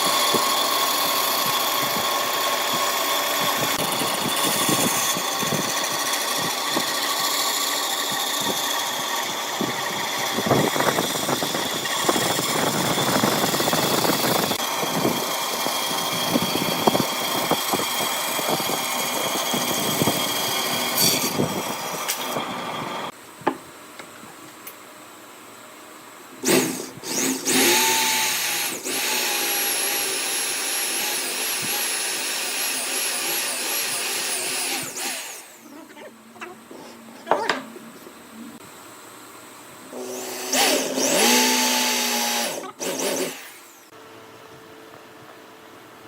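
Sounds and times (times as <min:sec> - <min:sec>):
motor whine: 0:00.0 - 0:23.1
power tool cutting and scraping: 0:00.0 - 0:23.1, 0:26.4 - 0:35.7, 0:39.9 - 0:43.9.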